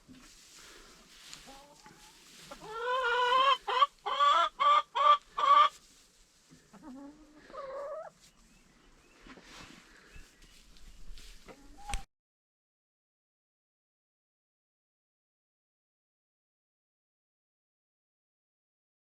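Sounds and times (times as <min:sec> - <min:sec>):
chickens clucking and calling: 0:00.0 - 0:12.1.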